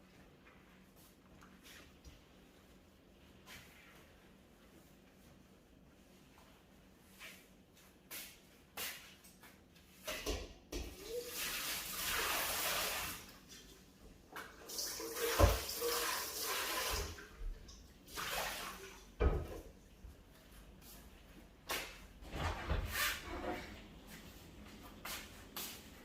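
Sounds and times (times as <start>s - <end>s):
tap water running: 10.7s - 19.7s.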